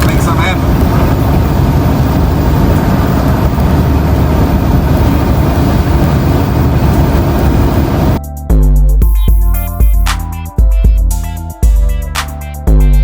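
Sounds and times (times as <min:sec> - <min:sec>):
truck engine and road noise: 0:00.0 - 0:08.2.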